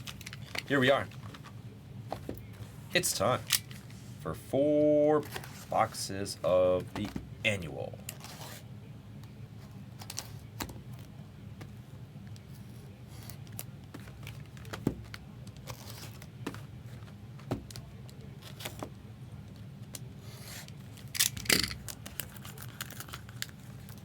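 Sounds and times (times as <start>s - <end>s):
steady low hum: 0.0s - 24.0s
plastic wrapper rustling: 21.0s - 24.0s.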